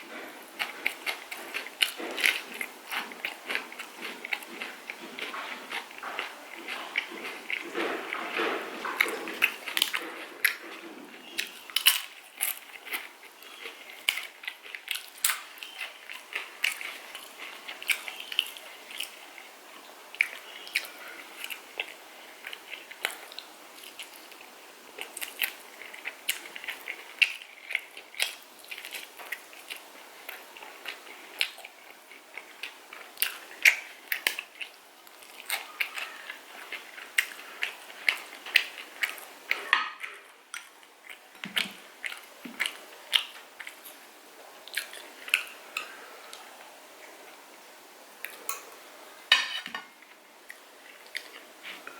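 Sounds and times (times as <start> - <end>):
person chewing and biting: 0.1 - 19.5.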